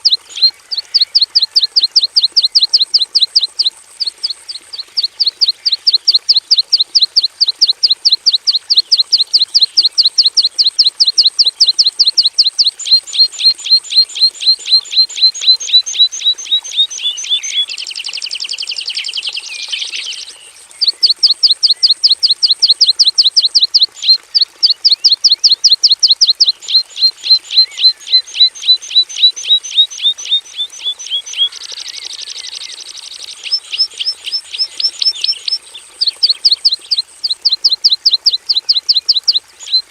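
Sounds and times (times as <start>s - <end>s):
bird trilling: 0.0s - 17.7s, 20.8s - 32.7s, 33.4s - 39.9s
bush lark singing sharp notes: 20.8s - 31.6s, 33.4s - 39.8s.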